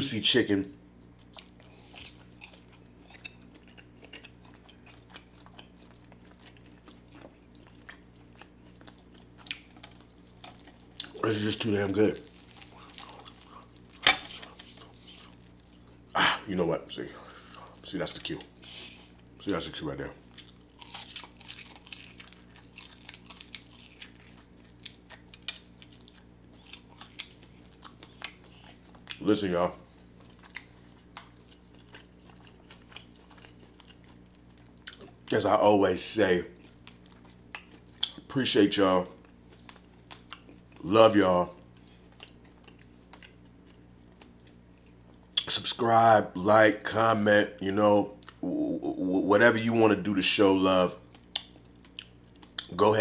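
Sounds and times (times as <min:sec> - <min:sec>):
low steady hum: 0:00.0 - 0:53.0
chewing crunches: 0:01.2 - 0:19.4, 0:20.2 - 0:29.2, 0:29.9 - 0:35.4, 0:36.6 - 0:38.3, 0:39.2 - 0:40.8, 0:41.6 - 0:45.6, 0:51.0 - 0:53.0
crisp crunches: 0:09.5 - 0:18.5, 0:20.3 - 0:28.7.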